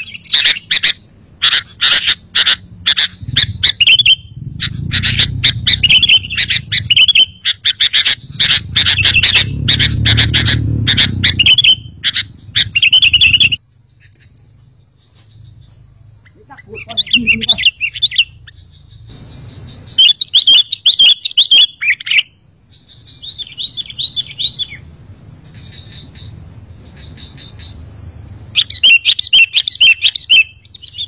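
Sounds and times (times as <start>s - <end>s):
bird chattering chirps: 0.0s - 31.0s
low rumble: 2.6s - 20.0s.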